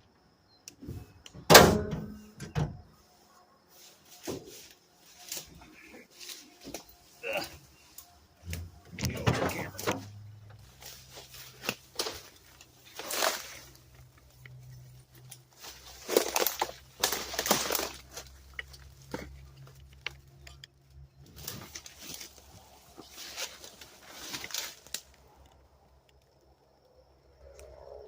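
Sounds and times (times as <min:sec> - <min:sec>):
knocks and scuffs of engine work: 0:03.9 - 0:25.6.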